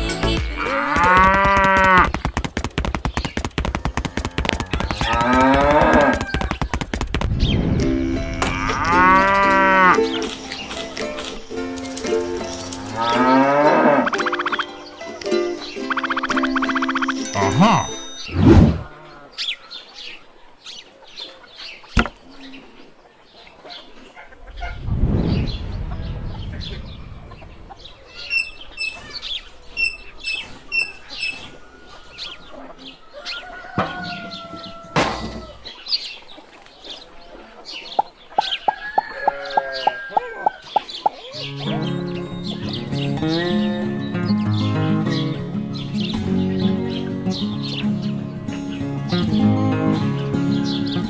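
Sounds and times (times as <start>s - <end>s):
small birds chirping: 1.2s - 7.9s, 9.8s - 18.3s, 18.9s - 51.0s
chickens clucking: 3.8s - 48.8s
brief rush of noise: 24.4s - 28.3s.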